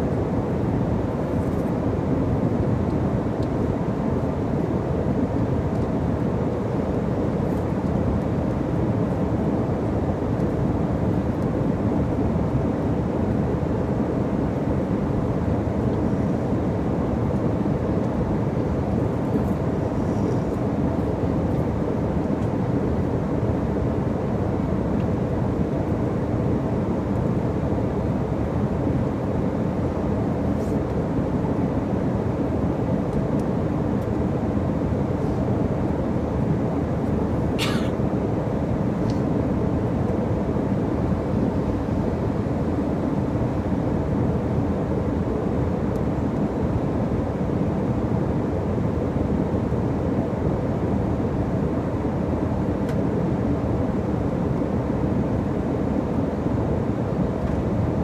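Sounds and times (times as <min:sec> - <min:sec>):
airliner cabin engine rumble: 0:15.7 - 0:26.0, 0:33.0 - 0:46.5.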